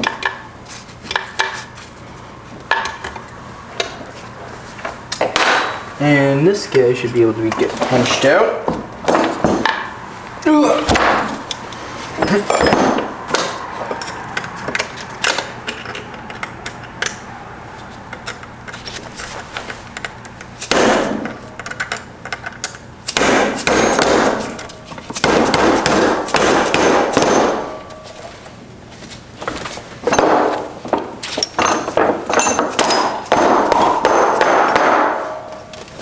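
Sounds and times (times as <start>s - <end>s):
hammer striking metal: 12.2s - 14.2s, 20.6s - 21.4s, 23.1s - 28.2s, 31.5s - 35.8s.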